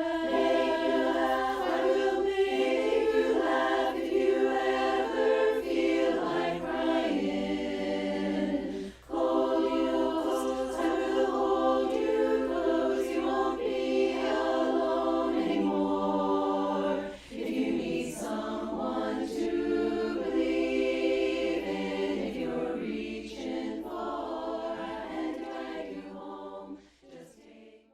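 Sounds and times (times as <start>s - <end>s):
choir singing held chords: 0.0s - 27.9s
singer breaths: 8.7s - 9.1s, 17.0s - 17.4s, 26.7s - 27.1s.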